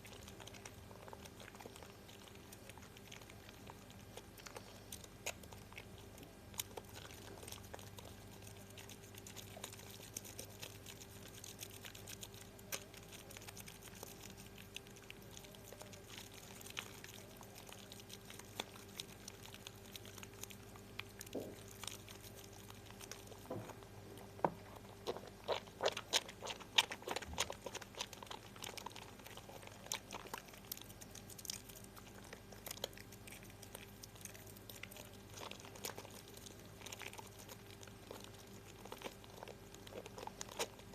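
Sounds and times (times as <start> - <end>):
soap lather clicks and crackles: 0.0 - 40.9.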